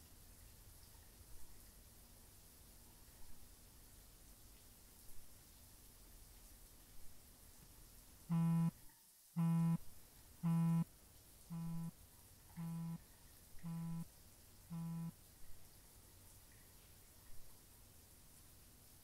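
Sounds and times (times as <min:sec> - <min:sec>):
mobile phone buzzing: 0:08.3 - 0:08.7, 0:09.4 - 0:09.8, 0:10.4 - 0:10.8, 0:11.5 - 0:11.9, 0:12.6 - 0:13.0, 0:13.6 - 0:14.0, 0:14.7 - 0:15.1.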